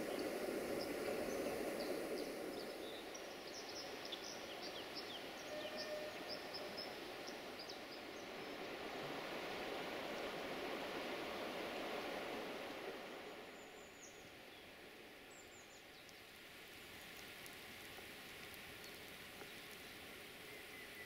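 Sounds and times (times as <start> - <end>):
small birds chirping: 0.0 - 8.8, 18.4 - 21.0.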